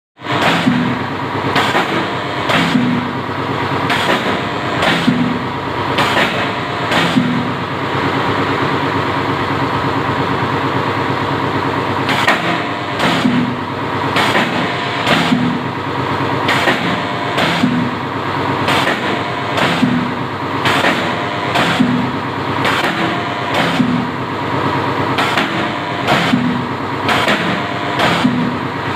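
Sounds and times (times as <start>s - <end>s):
steady machine hum: 0.2s - 28.9s.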